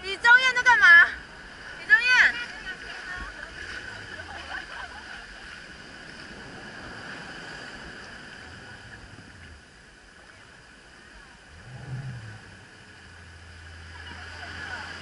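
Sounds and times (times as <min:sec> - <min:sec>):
boat engine running: 0:00.0 - 0:15.0
sea wash around hull: 0:00.0 - 0:15.0
low rumble: 0:03.5 - 0:15.0.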